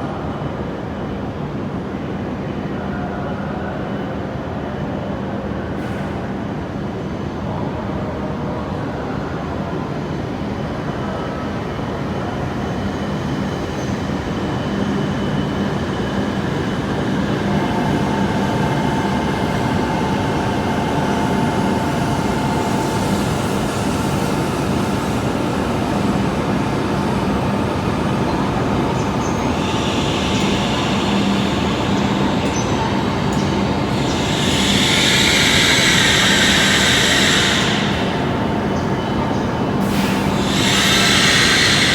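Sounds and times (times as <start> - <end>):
train rumble and rush: 0.0 - 41.9
whining traction motor tones: 12.4 - 41.9
bright hiss: 14.6 - 41.9.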